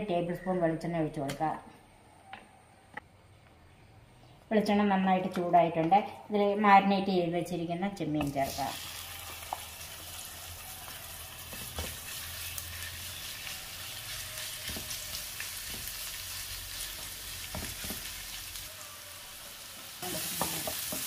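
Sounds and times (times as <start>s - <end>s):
prawns sizzling in oil: 8.3s - 21.0s.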